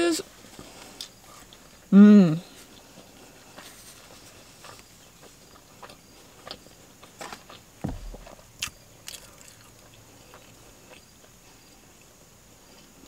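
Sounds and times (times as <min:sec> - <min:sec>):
person chewing crunchy food: 0:02.6 - 0:11.4
thump: 0:07.8 - 0:08.4.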